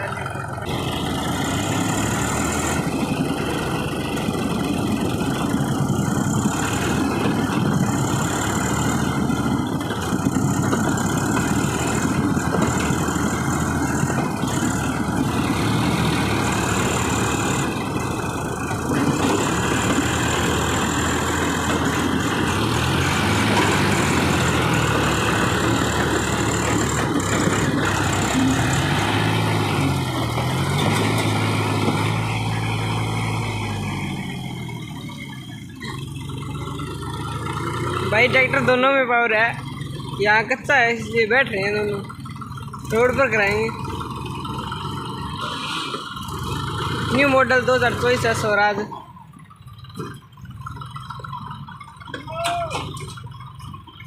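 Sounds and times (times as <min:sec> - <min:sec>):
diesel tractor engines under load: 0:00.0 - 0:54.0.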